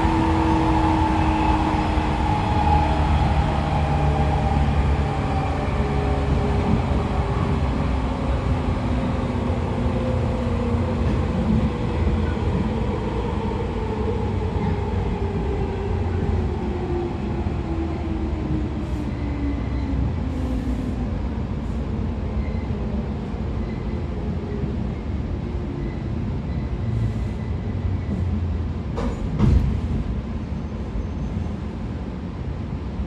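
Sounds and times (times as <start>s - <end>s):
train wheels rumbling: 0.0s - 22.6s.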